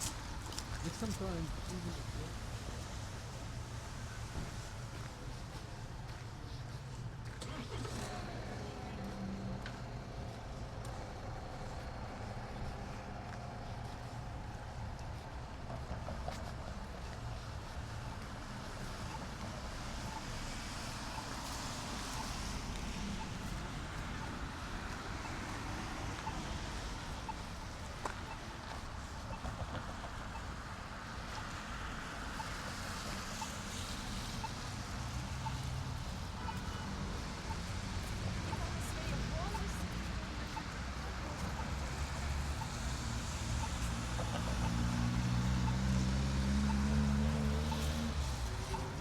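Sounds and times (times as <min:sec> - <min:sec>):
traffic rumble: 0:00.0 - 0:49.0
engine hum rising in pitch: 0:07.4 - 0:14.2, 0:40.8 - 0:49.0.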